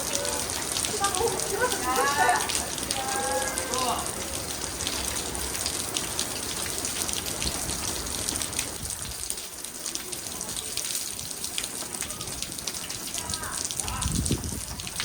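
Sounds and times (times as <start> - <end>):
heavy rain: 0.0 - 15.0
raindrops pattering on a surface: 0.0 - 15.0.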